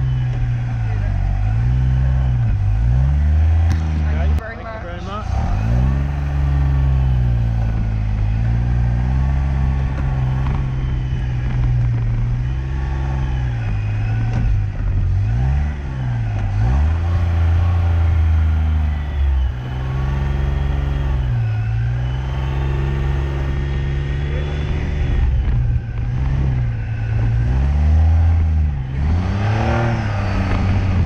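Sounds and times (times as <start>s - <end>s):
sports car engine revving: 0.0s - 31.0s.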